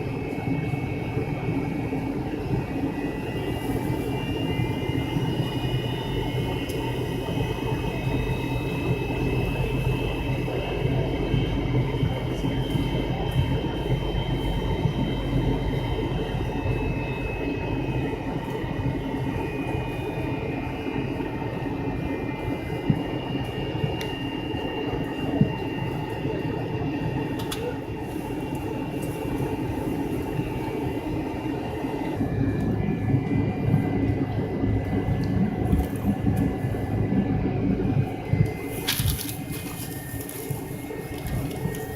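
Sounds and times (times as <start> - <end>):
jet engines whining: 0.0 - 41.9
low cabin rumble: 0.0 - 41.9
airframe rumble and rattle: 32.2 - 41.9.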